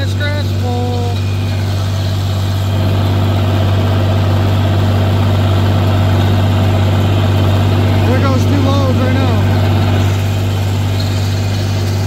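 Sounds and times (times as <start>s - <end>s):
tractor engine under load: 0.0s - 12.0s.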